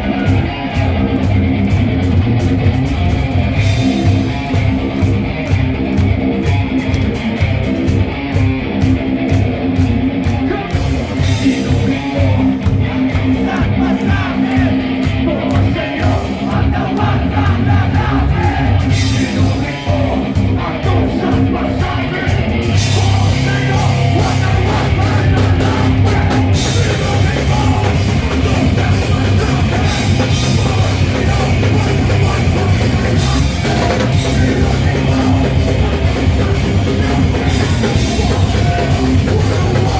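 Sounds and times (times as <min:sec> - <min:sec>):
drum kit: 0:00.0 - 0:39.9
electric guitar: 0:00.0 - 0:39.9
person singing: 0:10.3 - 0:39.9.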